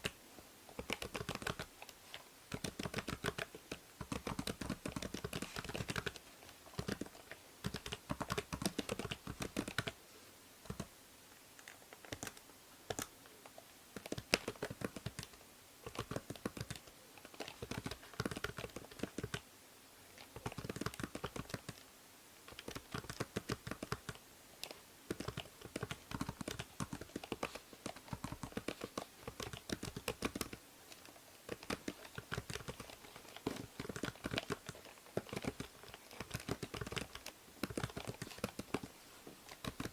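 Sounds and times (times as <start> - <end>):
faint microphone hiss: 0.0 - 39.9
keyboard typing: 0.8 - 10.0, 10.6 - 10.9, 11.6 - 13.1, 14.0 - 19.4, 20.2 - 21.8, 22.4 - 39.9.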